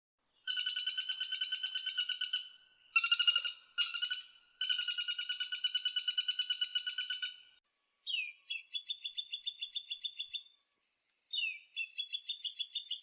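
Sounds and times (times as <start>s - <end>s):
woodpecker rattling call: 0.5s - 7.4s.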